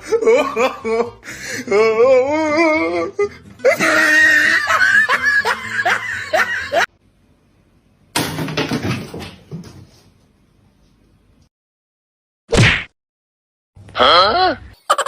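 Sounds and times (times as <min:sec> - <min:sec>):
person laughing: 0:00.0 - 0:06.9, 0:14.8 - 0:15.0.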